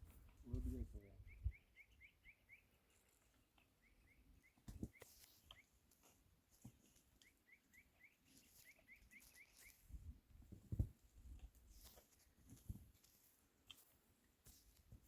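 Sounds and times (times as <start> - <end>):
faint bird chirping: 0.5 - 6.2, 6.8 - 10.2.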